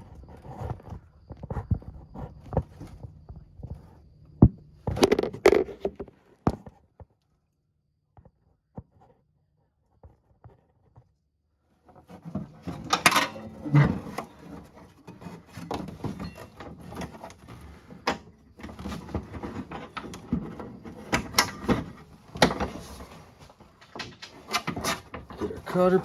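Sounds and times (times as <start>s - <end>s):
sharp clicks and knocks: 4.9s - 6.1s
parts rubbing and clattering: 4.9s - 6.2s, 12.0s - 26.0s.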